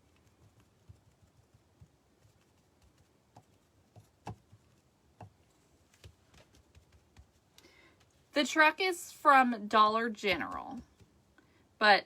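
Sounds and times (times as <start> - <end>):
light taps and clicks of craft work: 0.0 - 8.2, 10.2 - 11.5.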